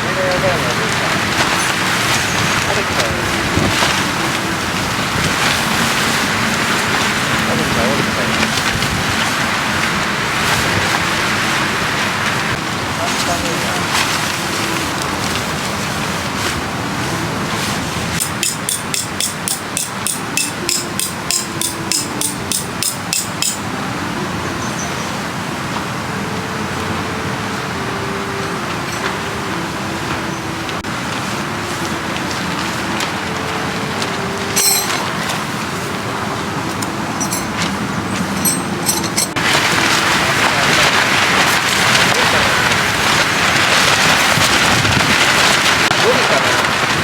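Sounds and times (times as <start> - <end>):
strong wind buffeting: 0.0 - 18.2, 23.6 - 47.0
hammer striking metal tent peg: 18.2 - 23.6, 34.6 - 35.0.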